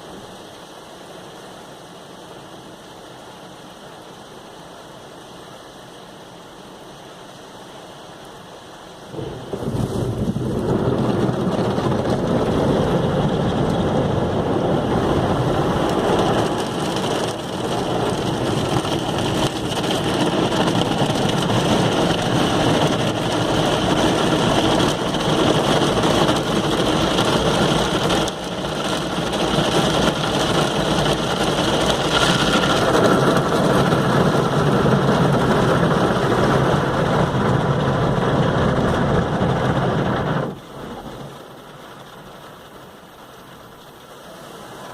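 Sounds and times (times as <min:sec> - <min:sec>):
water spray hitting car: 0:09.2 - 0:36.1.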